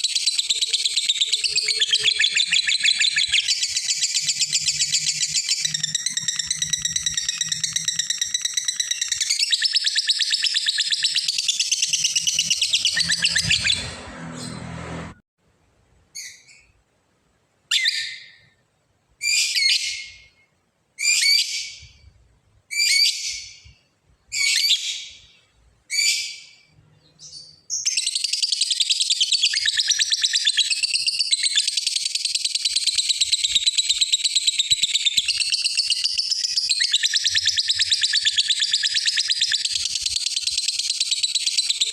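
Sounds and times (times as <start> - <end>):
bird chattering trill: 0.0 - 13.9.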